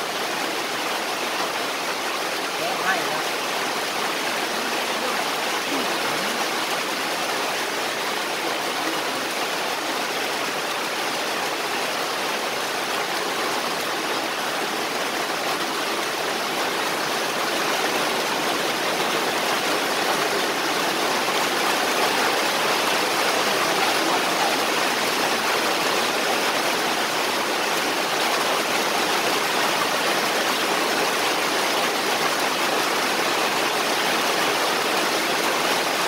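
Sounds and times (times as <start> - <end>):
rain falling: 0.0 - 36.0.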